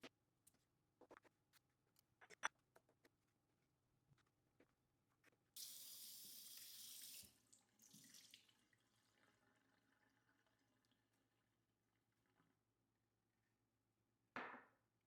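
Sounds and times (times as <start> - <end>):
kitchen tap running hard: 5.6 - 8.4.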